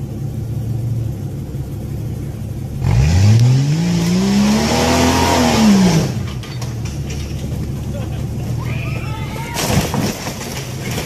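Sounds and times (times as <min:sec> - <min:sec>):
suv engine revving: 0:01.7 - 0:08.6.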